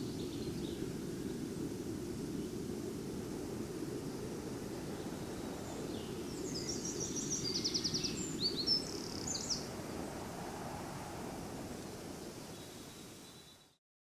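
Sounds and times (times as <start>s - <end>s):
songbird singing with trill: 4.9s - 9.7s, 12.4s - 13.8s.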